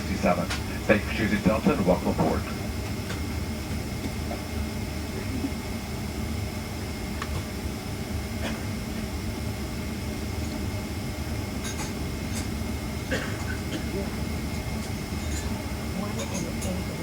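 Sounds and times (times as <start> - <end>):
airplane cabin hum: 0.0 - 17.0.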